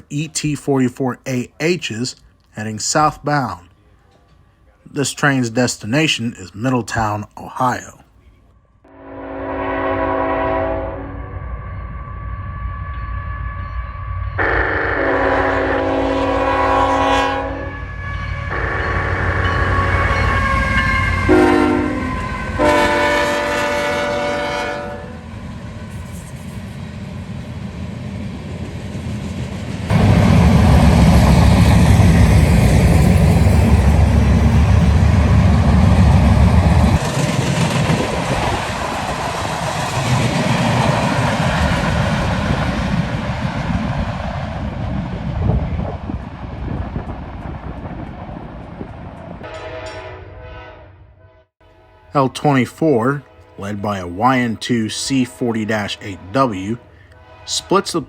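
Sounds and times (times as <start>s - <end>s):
locomotive horn: 8.9s - 25.2s, 49.4s - 58.0s
deep locomotive engine rumble: 8.9s - 58.0s
freight cars rolling: 28.5s - 44.1s.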